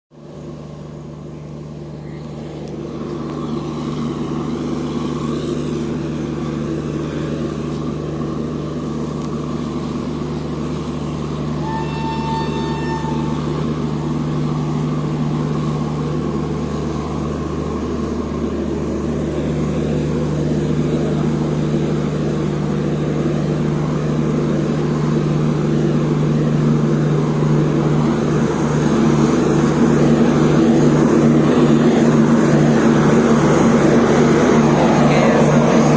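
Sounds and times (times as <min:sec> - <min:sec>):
train locomotive humming: 0:00.2 - 0:35.9
train horn blast: 0:11.4 - 0:15.1.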